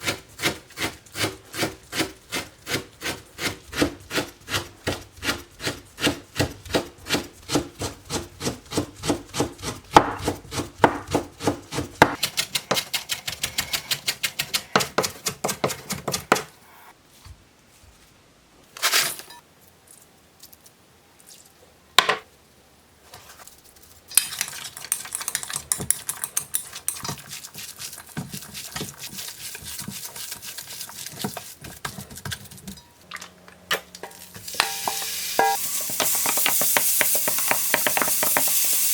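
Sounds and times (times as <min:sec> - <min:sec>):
knife chopping on wooden board: 0:00.0 - 0:16.5
food stirred in a pan: 0:24.1 - 0:33.4, 0:34.0 - 0:38.9.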